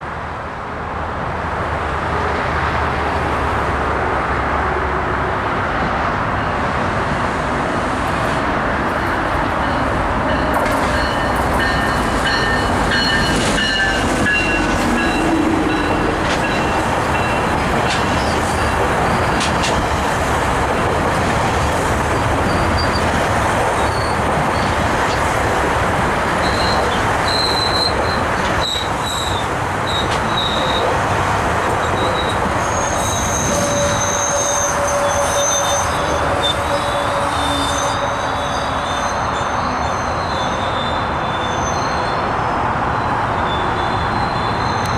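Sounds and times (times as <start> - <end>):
train rumble and rail noise: 0.0 - 44.9
wheel squeals: 22.3 - 25.2, 26.4 - 31.0, 31.7 - 42.3, 43.0 - 44.9.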